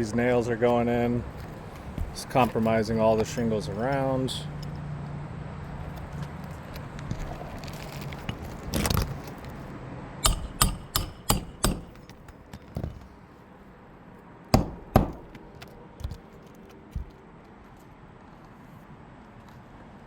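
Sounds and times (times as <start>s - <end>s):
hammer striking roofing nails: 10.2s - 13.1s, 14.6s - 16.2s.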